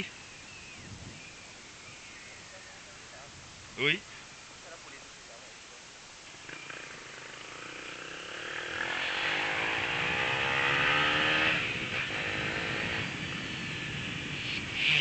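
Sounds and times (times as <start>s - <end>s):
motorcycle engine accelerating: 6.3s - 15.0s.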